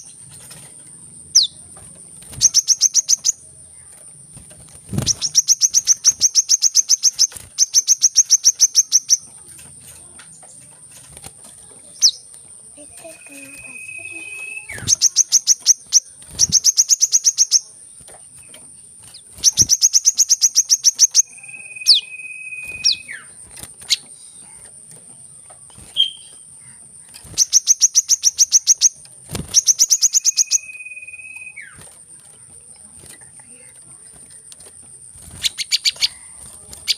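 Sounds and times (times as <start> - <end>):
bird chattering trills: 0.0 - 36.9
constant high-pitched tone: 0.0 - 36.9
bird whistles dropping in pitch: 21.2 - 23.3, 29.6 - 31.8.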